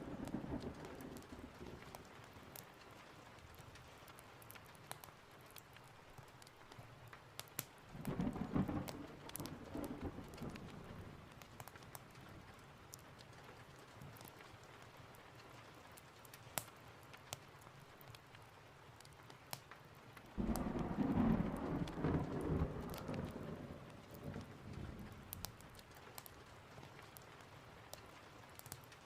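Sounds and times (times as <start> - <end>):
thunder rumbling: 0.0 - 2.1, 8.0 - 11.4, 20.4 - 25.8
steady rain: 0.0 - 29.0.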